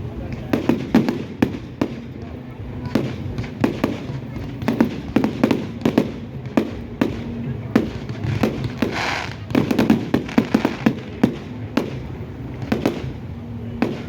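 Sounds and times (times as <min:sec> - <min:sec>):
fireworks bangs and cracks: 0:00.0 - 0:14.0
firework hiss: 0:04.6 - 0:12.1.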